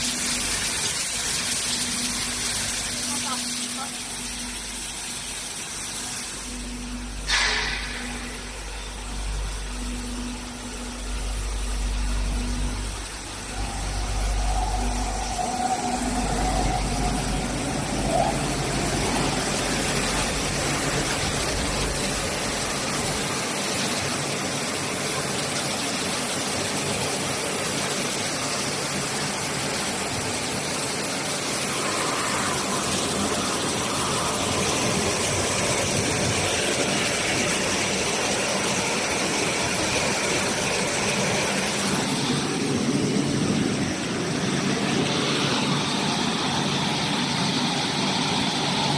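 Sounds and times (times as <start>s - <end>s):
industrial washing machine running: 0.0s - 48.9s
deep low rumble: 6.9s - 23.2s.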